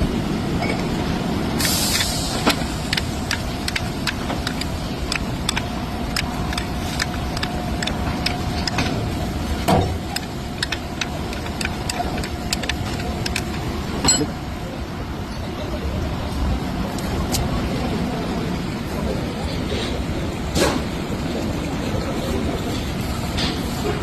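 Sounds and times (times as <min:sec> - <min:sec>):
light ticking: 0:01.6 - 0:09.0
car engine running: 0:01.6 - 0:14.0.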